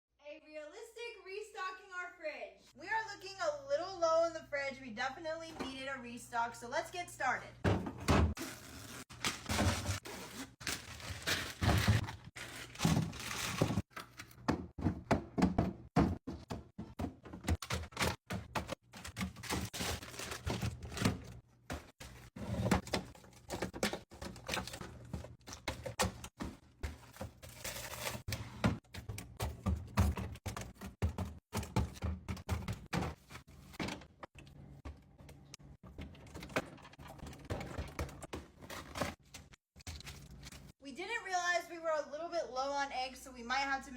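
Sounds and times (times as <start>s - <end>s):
items knocking on fridge shelves: 7.6s - 8.7s, 10.8s - 35.0s
fridge drawers sliding: 17.1s - 28.8s.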